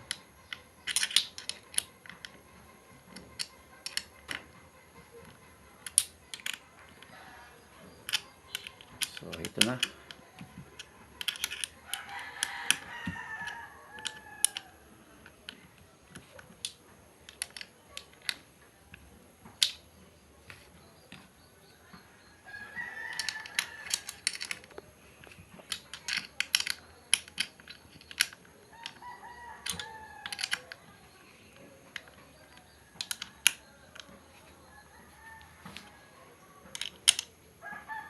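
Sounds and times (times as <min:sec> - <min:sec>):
clicks of small parts and tools: 0:00.0 - 0:22.0, 0:22.7 - 0:37.9
rooster crowing: 0:11.8 - 0:15.0, 0:22.4 - 0:24.2, 0:28.7 - 0:30.7, 0:37.6 - 0:38.0.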